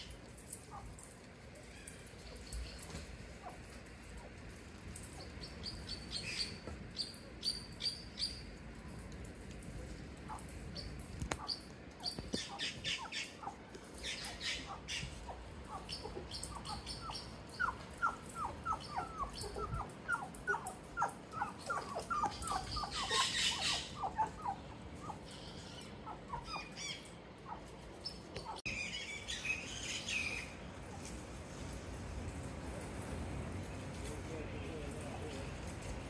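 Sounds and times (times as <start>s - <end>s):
bird chirping: 5.0s - 8.6s, 10.3s - 30.6s.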